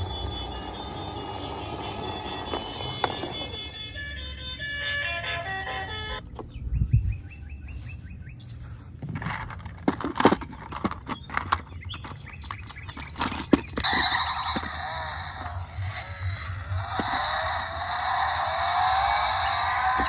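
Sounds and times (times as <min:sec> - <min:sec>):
plastic toy cars knocking: 0:00.0 - 0:03.7, 0:09.0 - 0:15.6, 0:16.8 - 0:17.4
busy electronic noise: 0:00.0 - 0:06.2, 0:13.8 - 0:20.0.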